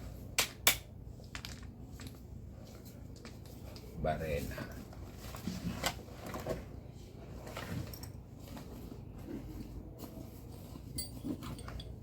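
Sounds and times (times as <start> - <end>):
low steady hum: 0.0 - 12.0
metal tools clicking and rustling: 7.6 - 8.3, 10.8 - 12.0.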